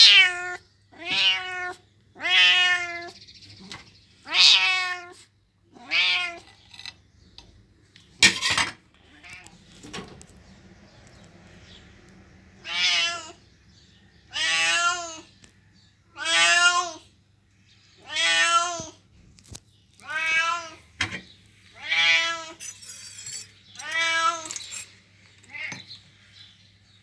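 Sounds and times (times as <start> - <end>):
cat meowing: 0.0 - 3.2, 4.2 - 6.5, 12.6 - 13.4, 14.3 - 15.3, 16.2 - 17.1, 18.0 - 19.0, 20.0 - 20.9, 21.8 - 22.6, 23.8 - 24.6, 25.5 - 25.8.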